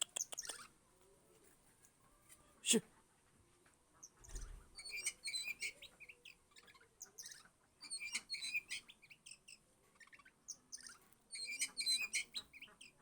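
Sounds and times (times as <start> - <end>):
bird singing chirps and trills: 4.2 - 13.0.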